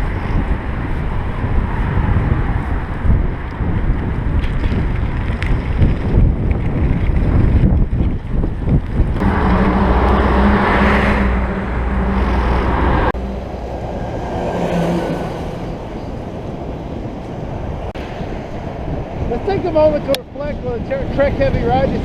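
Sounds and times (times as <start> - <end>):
traffic: 0.0 - 22.0
wind noise on microphone: 0.0 - 22.0
vehicle engine running close by: 9.1 - 15.8.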